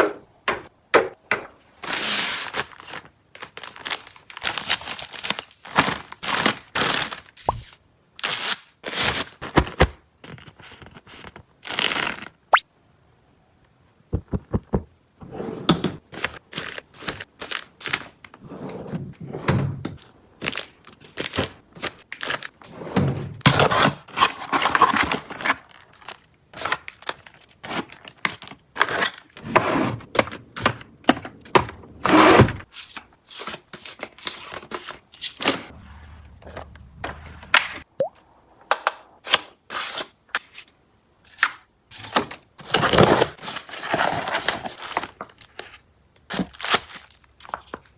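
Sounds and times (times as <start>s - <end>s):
items knocking and clacking: 14.1s - 15.0s.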